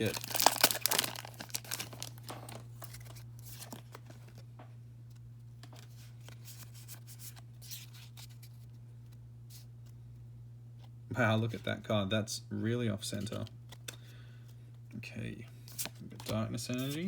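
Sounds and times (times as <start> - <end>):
trading cards rustling: 0.0 - 4.4, 15.6 - 17.0
steady low hum: 0.0 - 17.0.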